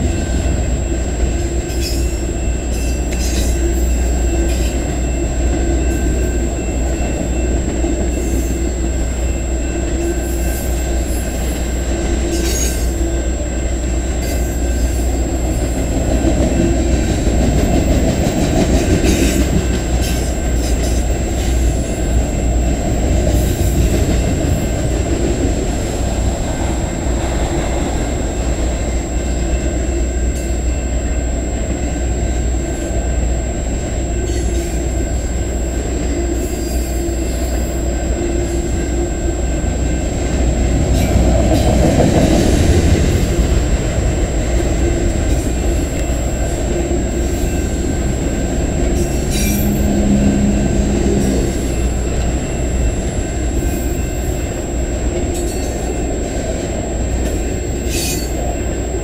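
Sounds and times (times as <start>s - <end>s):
train wheels rumbling on rail: 0.0s - 59.0s
high-pitched wheel squeals: 8.1s - 13.6s, 45.4s - 56.1s, 57.0s - 58.9s.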